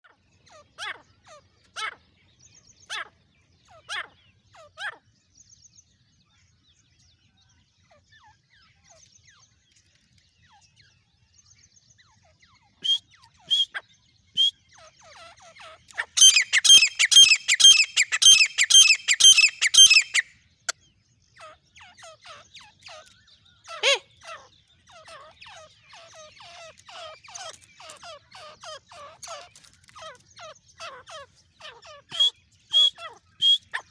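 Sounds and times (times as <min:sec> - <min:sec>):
soft fast bird chattering: 0:14.4 - 0:20.2, 0:21.4 - 0:33.9
francolin calling: 0:16.0 - 0:20.3, 0:32.1 - 0:33.9.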